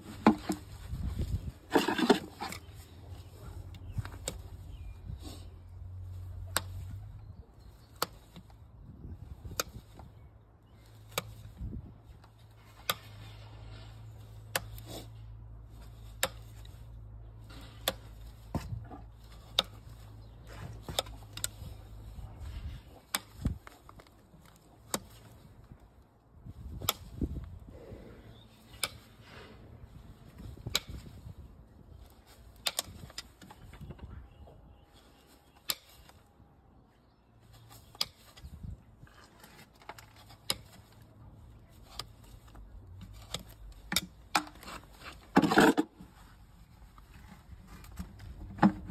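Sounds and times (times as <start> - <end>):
scraping hoof: 0.0 - 2.9
hoof trimming clicks and cuts: 0.0 - 36.3, 37.0 - 48.9.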